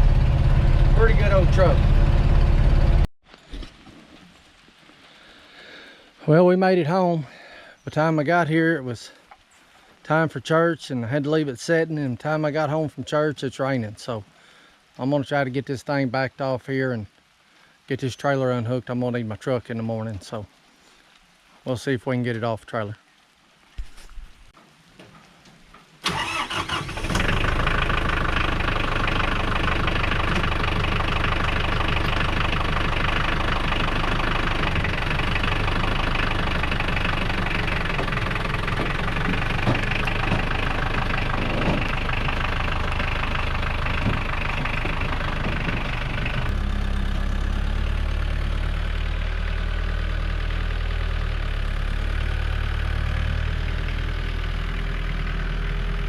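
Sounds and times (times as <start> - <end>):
tractor engine running: 0.0 - 3.1, 26.0 - 56.0.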